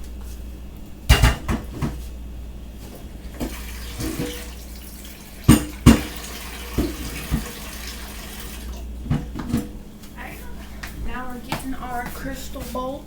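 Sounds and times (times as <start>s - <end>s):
dishes knocking: 1.1s - 2.0s, 5.5s - 7.5s
tap running into sink: 3.4s - 4.6s, 5.5s - 8.5s.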